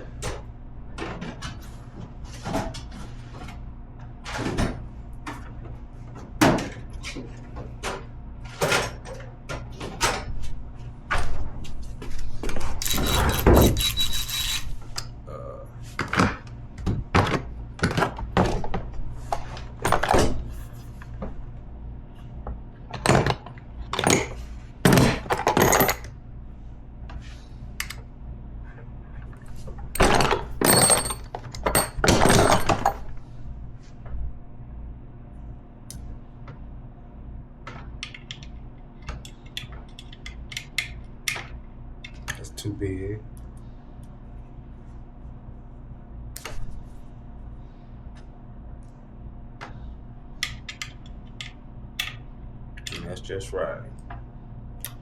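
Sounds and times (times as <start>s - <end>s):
steady low hum: 0.0s - 55.0s
metal parts clinking and knocking: 12.8s - 14.8s, 30.0s - 33.0s.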